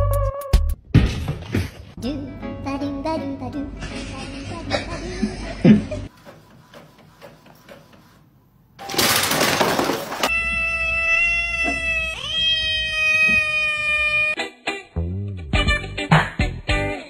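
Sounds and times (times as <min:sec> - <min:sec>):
printer feeding paper: 0:06.1 - 0:08.3
kitten meowing: 0:10.3 - 0:14.4.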